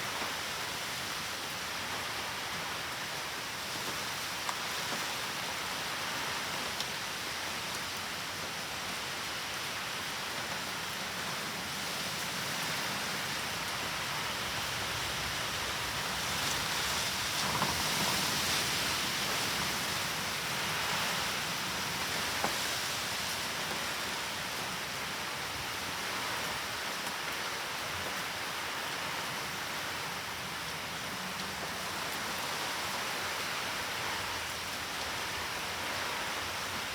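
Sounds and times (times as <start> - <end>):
heavy rain falling: 9.0 - 36.9.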